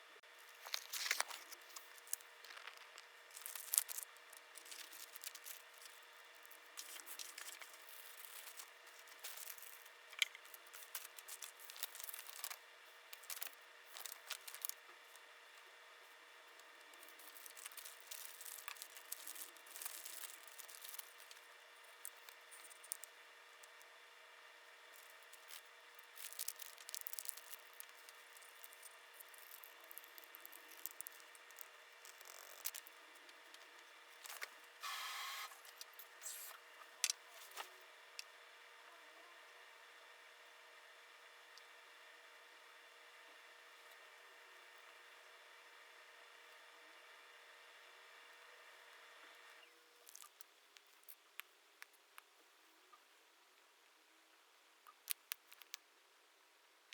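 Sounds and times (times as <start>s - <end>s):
faint steady hum: 0.0s - 56.9s
crinkling of craft materials: 0.2s - 24.0s, 24.8s - 34.7s, 35.5s - 38.3s, 50.0s - 52.3s, 54.9s - 55.9s.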